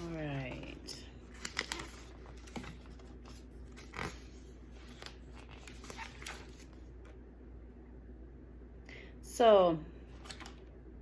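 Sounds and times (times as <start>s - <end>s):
paper pages rustling: 0.0s - 6.9s, 10.2s - 10.6s.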